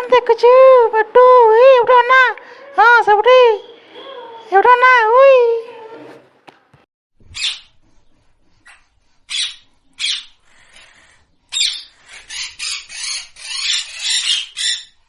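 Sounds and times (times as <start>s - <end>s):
parrot squawking: 7.4s - 7.7s, 8.6s - 10.4s, 11.5s - 15.0s.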